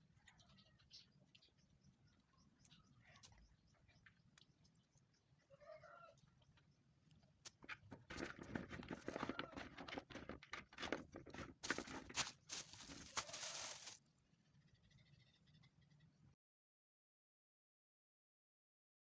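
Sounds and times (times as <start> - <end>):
rustling and crackling: 7.7 - 14.0.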